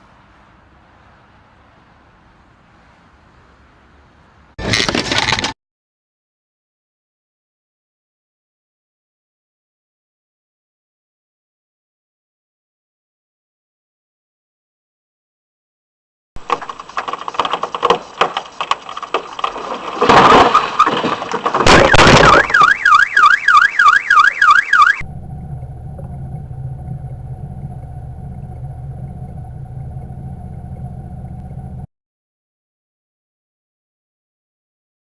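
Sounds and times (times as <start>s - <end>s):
vehicle collision crunching: 4.6s - 5.6s, 16.4s - 31.9s
warbling alarm: 21.7s - 31.9s
engine hum: 24.4s - 31.9s.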